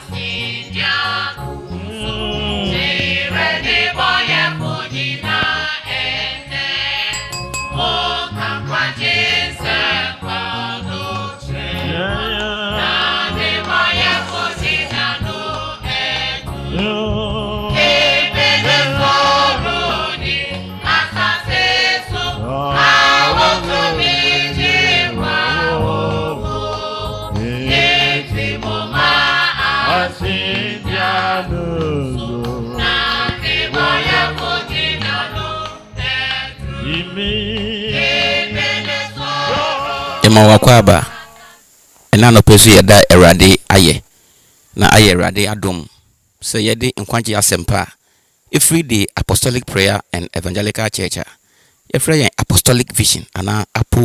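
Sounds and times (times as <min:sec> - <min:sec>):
choir singing gospel: 0:00.0 - 0:42.3
instrumental backing: 0:00.8 - 0:40.4.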